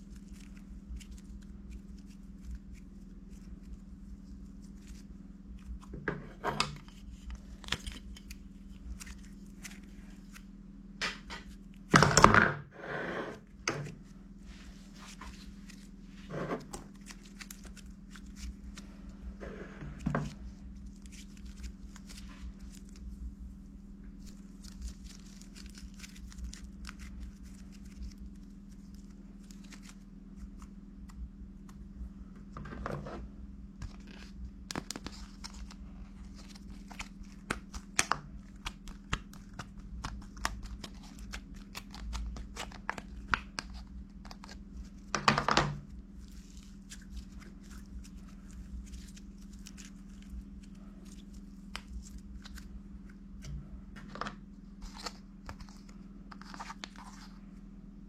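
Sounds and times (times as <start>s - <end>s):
steady low hum: 0.0s - 58.0s
scratchy handling noises: 12.8s - 23.2s, 24.1s - 57.6s.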